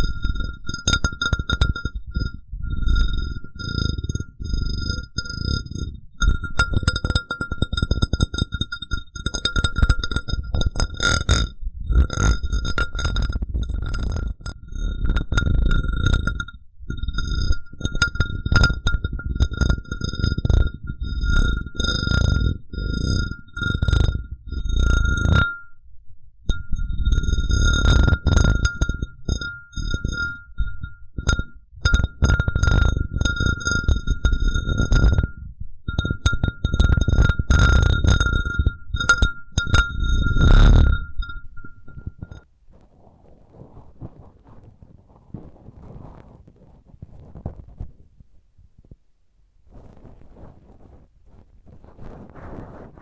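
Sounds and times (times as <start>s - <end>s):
glass cup ringing when tapped: 0.0s - 4.2s, 6.2s - 14.4s, 15.2s - 22.4s, 27.8s - 42.4s
glass cup taps ringing: 6.2s - 11.5s, 37.6s - 42.4s.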